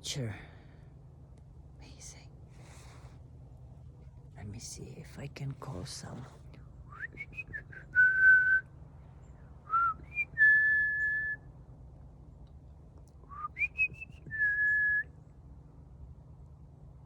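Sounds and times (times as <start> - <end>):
person whistling: 6.9 - 8.6, 9.7 - 11.4, 13.3 - 15.0.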